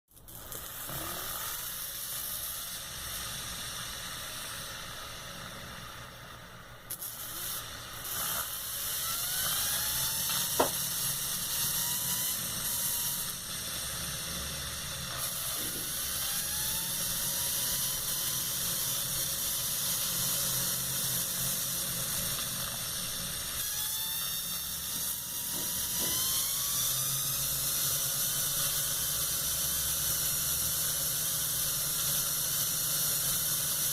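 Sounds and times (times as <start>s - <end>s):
electric drill motor whining: 7.1s - 33.9s.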